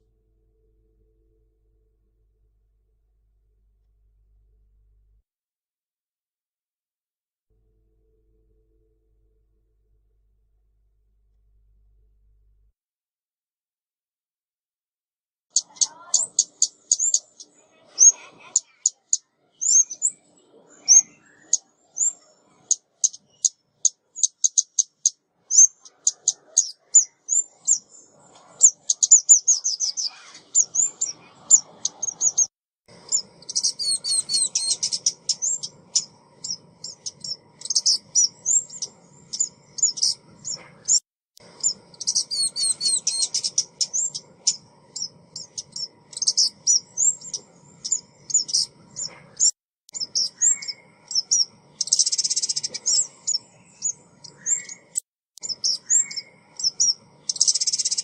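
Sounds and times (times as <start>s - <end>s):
bird chirping and trilling: 15.5s - 58.0s.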